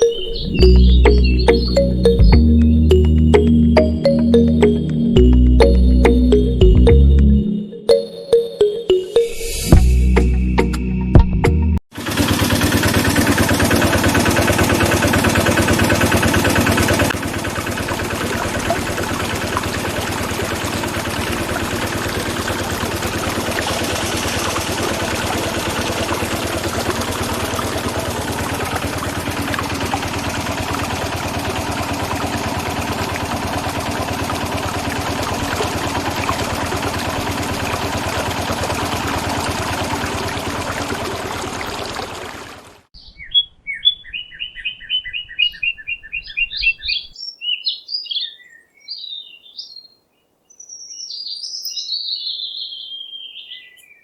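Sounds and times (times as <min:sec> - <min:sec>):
engine chugging: 0:00.0 - 0:07.4, 0:11.9 - 0:42.9.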